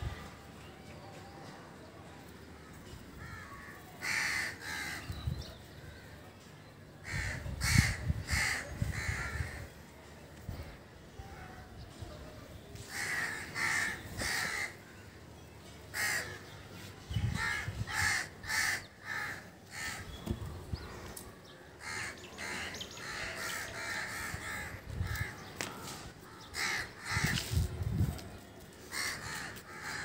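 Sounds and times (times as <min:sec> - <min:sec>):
harsh bird caws: 0:03.2 - 0:05.2, 0:07.0 - 0:09.7, 0:12.9 - 0:14.8, 0:17.3 - 0:20.4, 0:21.8 - 0:27.6, 0:28.9 - 0:30.0.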